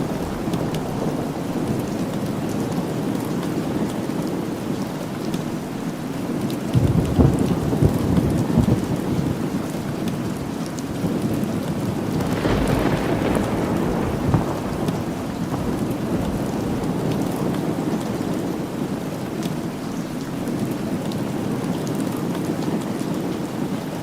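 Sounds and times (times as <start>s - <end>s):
thunder rumbling: 0.0s - 4.3s, 6.7s - 20.7s
steady rain: 0.0s - 24.0s.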